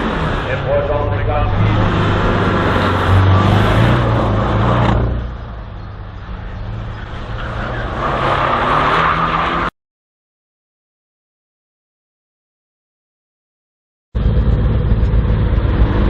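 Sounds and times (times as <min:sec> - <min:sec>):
race car engine pulling hard: 0:00.0 - 0:09.7, 0:14.2 - 0:16.0.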